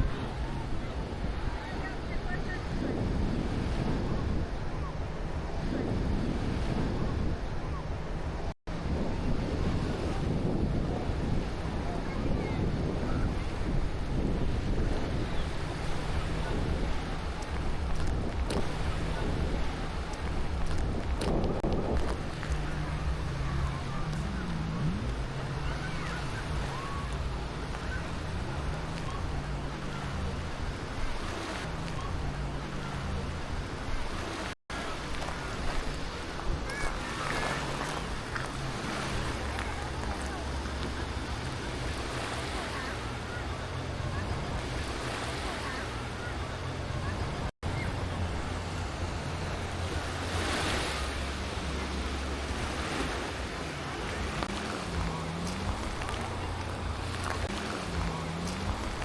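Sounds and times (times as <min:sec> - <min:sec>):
faint distant voices: 0:00.0 - 0:59.0
surf washing on beach: 0:00.0 - 0:59.0
wind on microphone: 0:00.0 - 0:59.0
low engine-like hum: 0:07.0 - 0:59.0.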